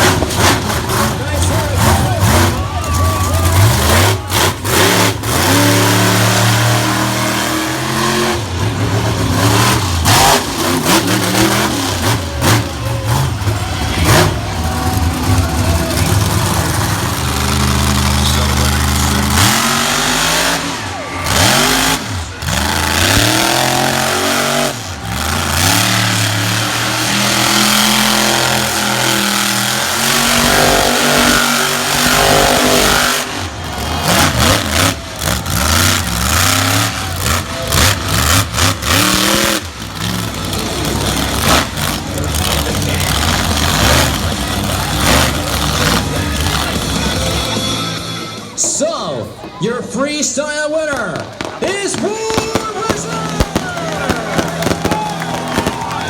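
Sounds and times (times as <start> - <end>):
deep engine drone: 0.0 - 48.6
truck engines revving: 0.0 - 56.0.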